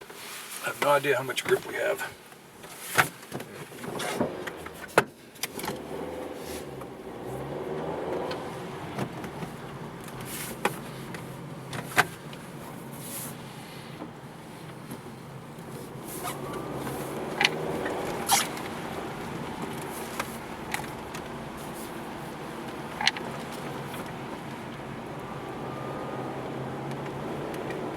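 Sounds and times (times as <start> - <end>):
car engine revving: 3.7 - 13.0, 15.1 - 27.9.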